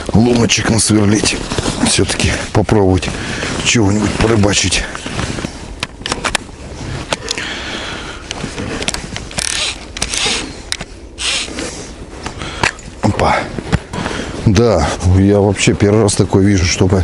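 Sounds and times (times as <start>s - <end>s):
crunching and scraping on snow: 0.0s - 17.0s.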